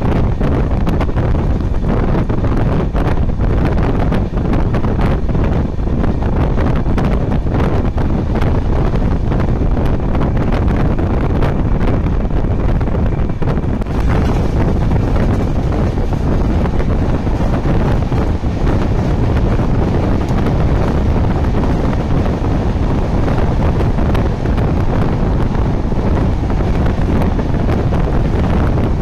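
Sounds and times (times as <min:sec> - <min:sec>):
train wheels rumbling on track: 0:00.0 - 0:29.0
wind rushing over microphone: 0:00.0 - 0:29.0.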